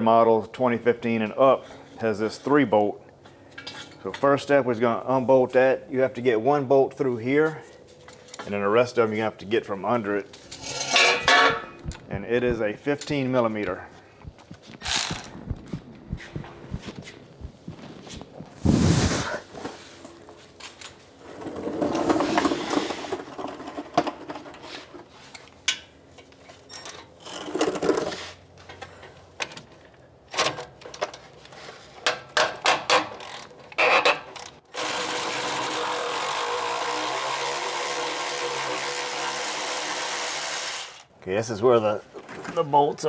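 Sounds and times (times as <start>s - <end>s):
short metallic rattles: 10.4s - 12.1s
ratchet wrench clicks: 14.9s - 15.3s
steady hiss: 18.5s - 20.0s.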